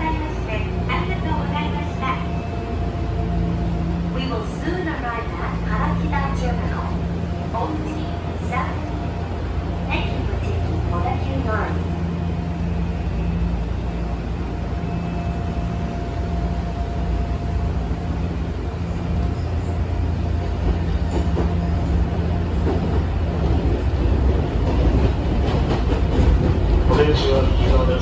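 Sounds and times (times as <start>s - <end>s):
train wheels rumbling: 0.0s - 28.0s
train wheel clacks: 20.6s - 28.0s.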